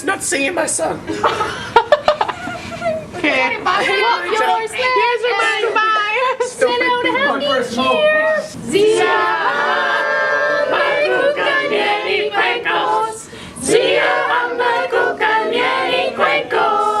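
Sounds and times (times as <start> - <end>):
group singing unaccompanied: 3.6 - 17.0.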